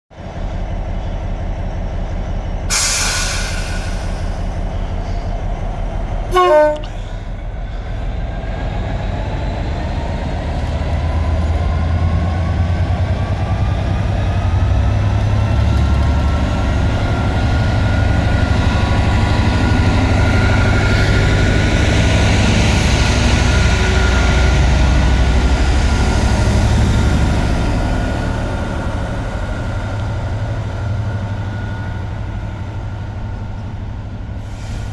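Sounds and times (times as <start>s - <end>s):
diesel locomotive engine throbbing: 0.2s - 34.9s
locomotive horn blast: 6.3s - 7.2s.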